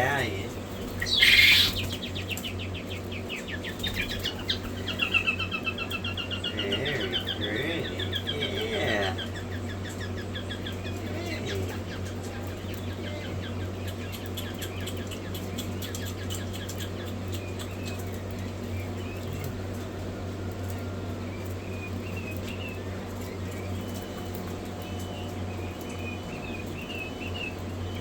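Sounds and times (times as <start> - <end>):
chicks peeping: 0.0 - 28.0
steady low hum: 0.0 - 28.0.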